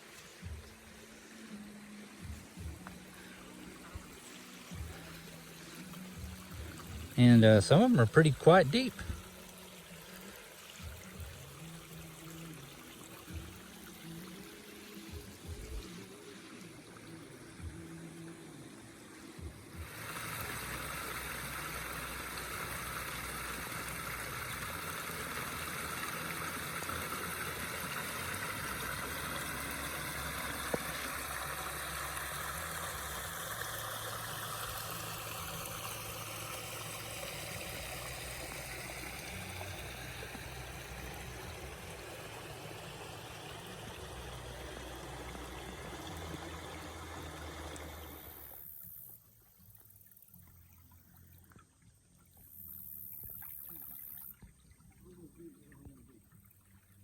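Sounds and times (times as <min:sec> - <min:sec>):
water pouring over rocks: 0:00.0 - 0:57.0.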